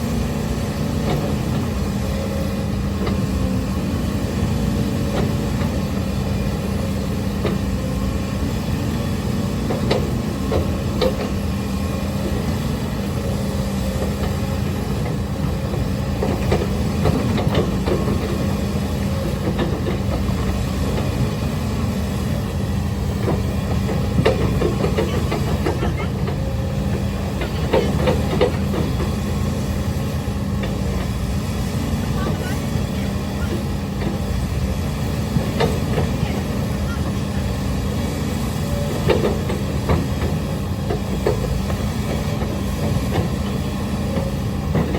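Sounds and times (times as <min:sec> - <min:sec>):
excavator diesel engine running: 0:00.0 - 0:44.9
knocks and clanks of machine: 0:09.6 - 0:11.5, 0:14.0 - 0:21.2, 0:23.2 - 0:29.6, 0:35.2 - 0:37.2, 0:38.8 - 0:44.9.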